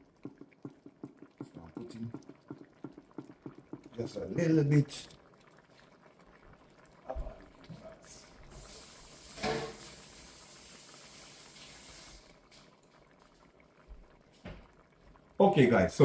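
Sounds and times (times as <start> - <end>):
steady hiss: 8.1 - 12.3.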